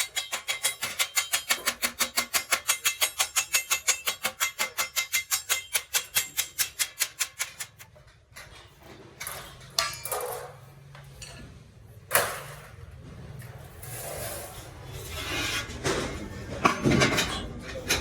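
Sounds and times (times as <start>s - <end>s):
sharp metal clank: 0.0s - 7.8s
hammer tapping on metal: 0.0s - 7.9s
scraping and handling noises: 0.0s - 18.0s.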